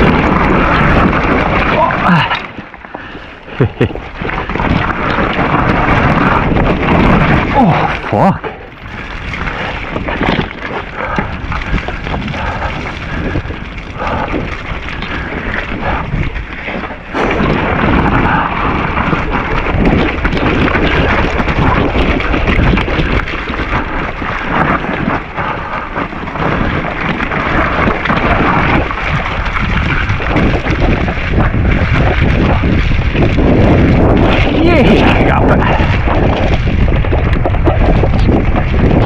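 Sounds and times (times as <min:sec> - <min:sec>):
bike rattling and knocking: 0:00.0 - 0:39.0
bike tyre noise on trail: 0:00.0 - 0:39.0
wind buffeting microphone: 0:00.0 - 0:39.0.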